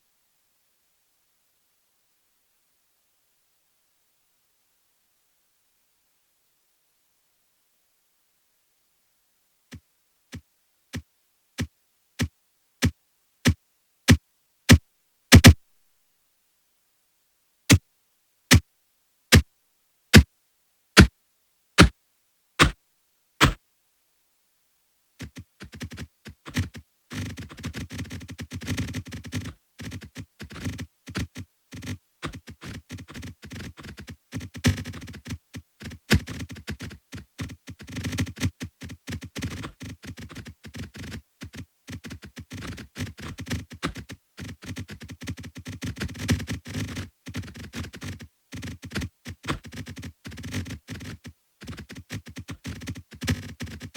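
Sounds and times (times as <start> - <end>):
sharp electronic clicks: 15.3 - 15.6.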